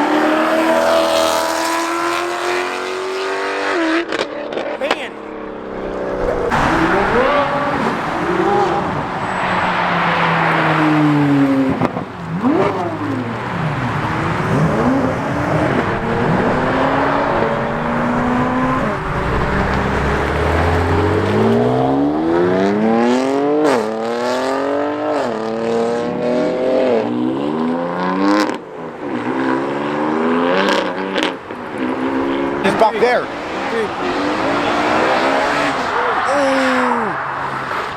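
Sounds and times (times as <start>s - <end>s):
cars accelerating hard: 0.0s - 37.9s
engine shifting through gears: 5.4s - 28.5s.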